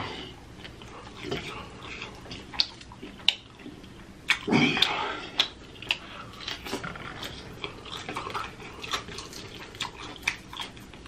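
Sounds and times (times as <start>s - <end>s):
wet chewing and lip-smacking: 0.5s - 11.0s.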